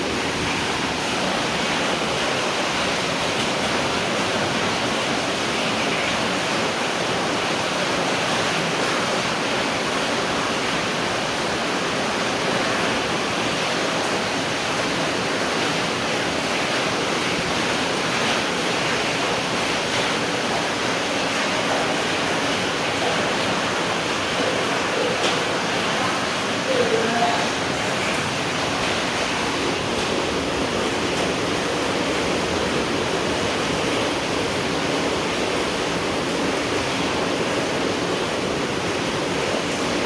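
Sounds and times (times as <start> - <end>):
steady rain hiss: 0.0 - 40.0.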